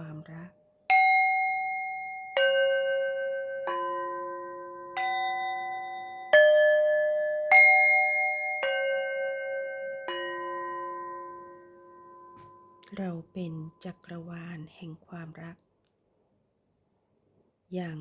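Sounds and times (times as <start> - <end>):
bell-like chime tones: 0.9 - 13.0.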